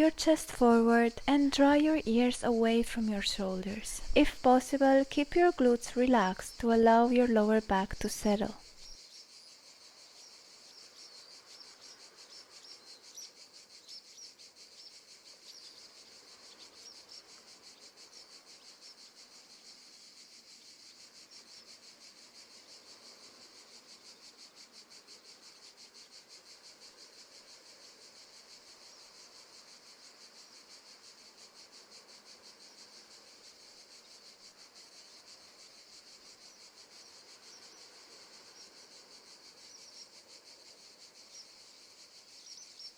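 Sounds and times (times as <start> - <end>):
crickets trilling: 0.0 - 42.9.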